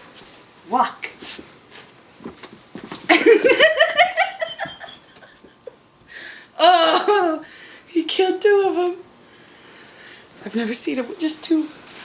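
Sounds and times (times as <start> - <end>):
woman giggling: 3.1 - 5.8, 6.6 - 7.4.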